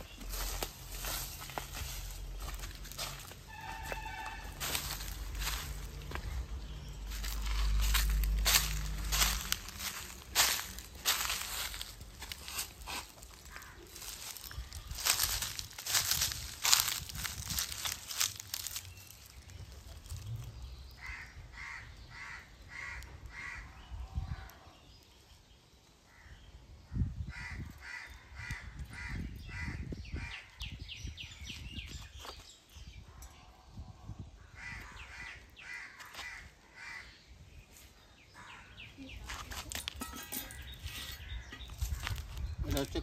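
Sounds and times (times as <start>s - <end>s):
dry leaves crackling: 0.0s - 21.2s, 39.0s - 43.0s.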